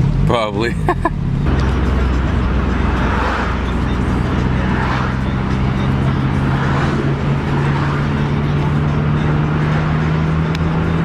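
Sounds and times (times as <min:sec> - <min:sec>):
car engine: 0:00.0 - 0:11.0.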